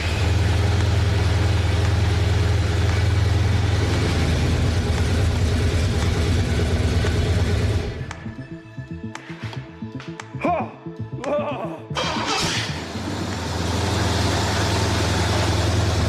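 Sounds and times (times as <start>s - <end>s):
car engine running: 0.0s - 8.2s, 12.0s - 16.0s.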